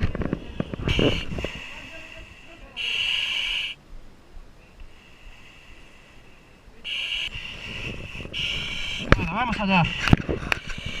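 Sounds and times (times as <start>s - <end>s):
faint steady tone: 0.3s - 11.0s
high-pitched electronic tone bursts: 0.8s - 1.4s, 2.8s - 3.8s, 6.8s - 10.1s.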